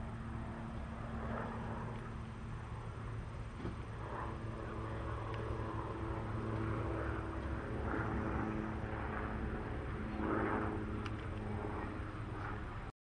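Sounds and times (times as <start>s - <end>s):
vehicle engine humming: 0.0s - 12.9s.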